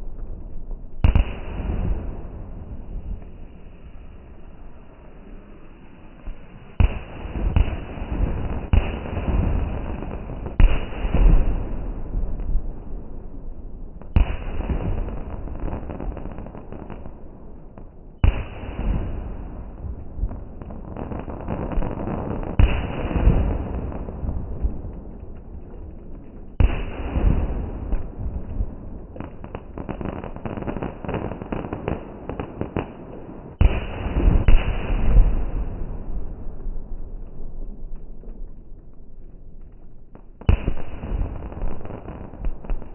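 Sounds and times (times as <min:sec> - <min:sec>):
rumble of fireworks display: 0:00.0 - 0:42.9
fireworks loud bangs: 0:01.0 - 0:03.8, 0:06.2 - 0:12.4, 0:18.2 - 0:36.8, 0:40.2 - 0:42.9
fireworks crackling: 0:14.0 - 0:42.9.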